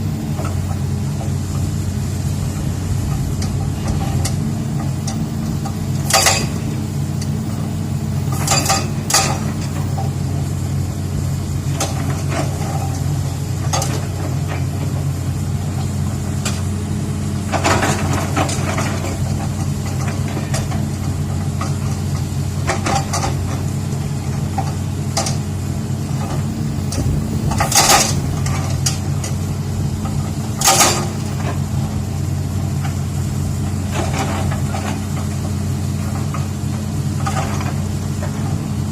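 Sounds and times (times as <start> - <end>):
diesel engine running: 0.0 - 38.9
sharp metallic clanks: 6.0 - 6.6.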